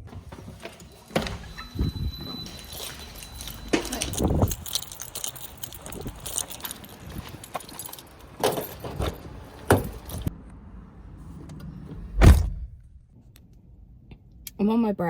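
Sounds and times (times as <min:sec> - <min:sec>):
keys jangling: 0:01.2 - 0:10.3
door shutting with heavy thump: 0:12.2 - 0:12.7.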